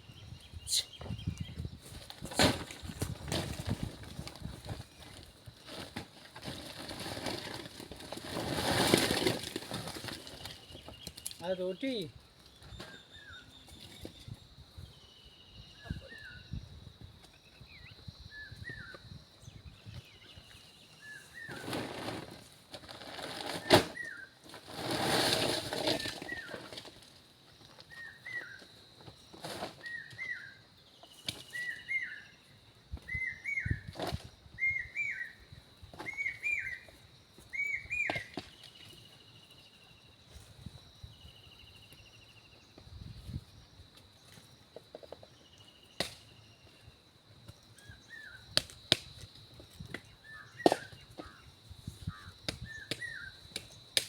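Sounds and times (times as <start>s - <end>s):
bird chirping: 10.2s - 16.6s, 37.5s - 40.2s.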